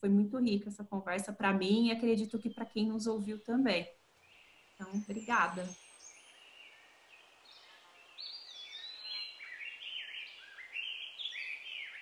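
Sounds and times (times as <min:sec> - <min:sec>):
birds chirping: 0:01.2 - 0:12.0.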